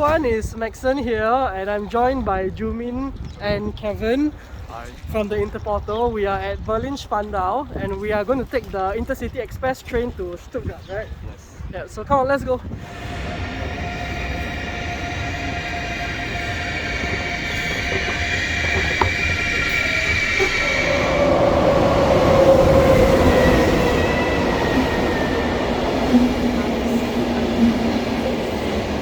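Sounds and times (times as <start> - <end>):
electric train whining: 12.7 - 29.0.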